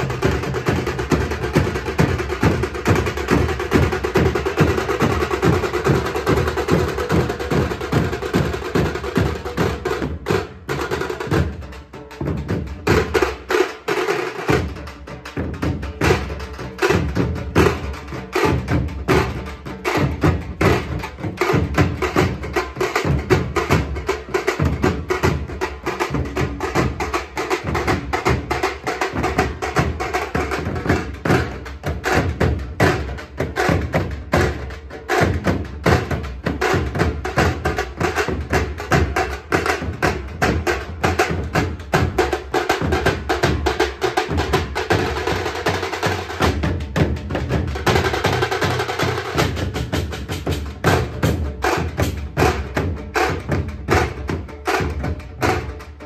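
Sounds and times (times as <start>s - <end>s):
drum band playing: 0.0s - 56.0s.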